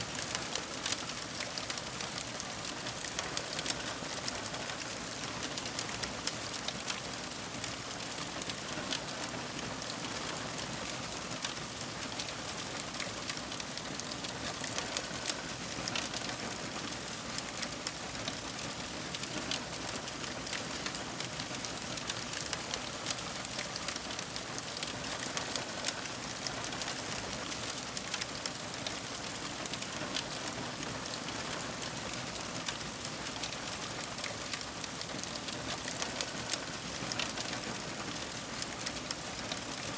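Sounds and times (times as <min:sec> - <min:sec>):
fire crackling and popping: 0:12.2 - 0:15.4, 0:21.7 - 0:30.0, 0:33.4 - 0:37.5.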